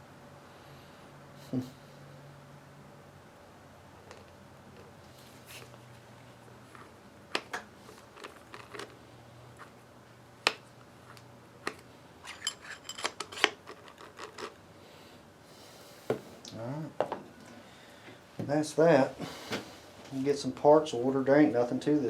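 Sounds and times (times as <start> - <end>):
metal parts clicking and clinking: 12.2 - 14.6.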